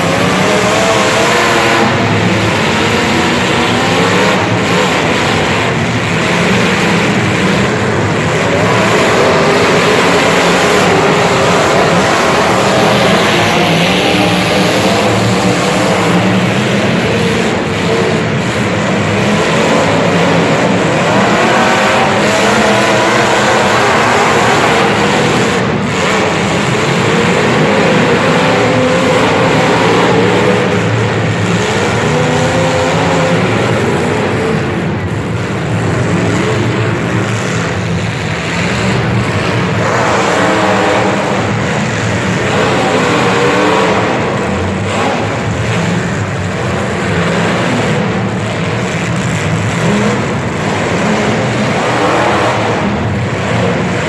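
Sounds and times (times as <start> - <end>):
racing engines revving: 0.0 - 54.0.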